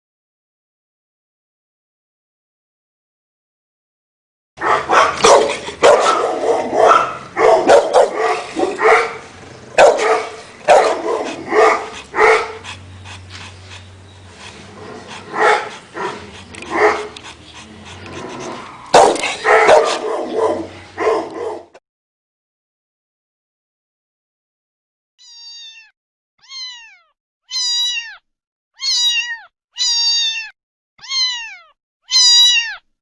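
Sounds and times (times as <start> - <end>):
dog barking: 4.6 - 12.8, 14.8 - 21.8.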